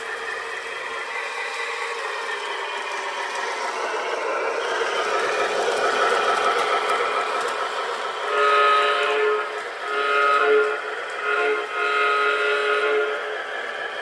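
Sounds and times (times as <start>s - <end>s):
model train rumbling: 0.0s - 14.0s
diesel horn blast: 8.3s - 13.2s.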